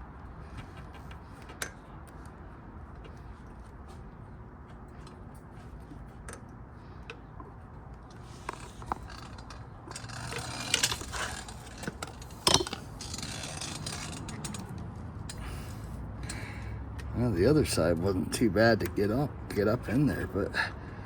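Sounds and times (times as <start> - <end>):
screwdriver scraping on rubber: 8.2 - 14.7.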